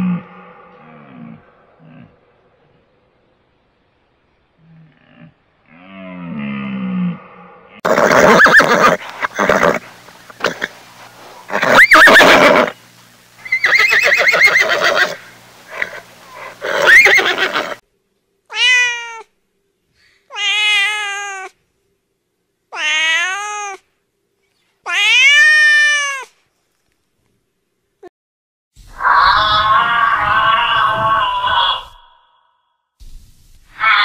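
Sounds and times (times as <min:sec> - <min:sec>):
horse whinnying: 0:07.8 - 0:09.8, 0:11.5 - 0:12.8, 0:13.4 - 0:17.8
cat meowing: 0:18.5 - 0:19.3, 0:20.3 - 0:21.6, 0:22.8 - 0:23.8, 0:24.9 - 0:26.3.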